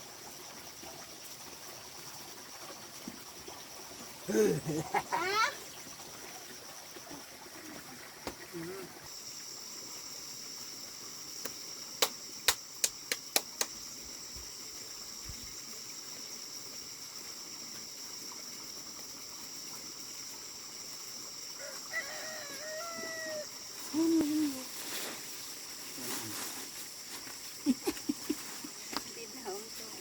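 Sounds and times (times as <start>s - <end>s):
high-pitched hiss: 7.0s - 30.0s
rooster crowing: 21.6s - 23.6s.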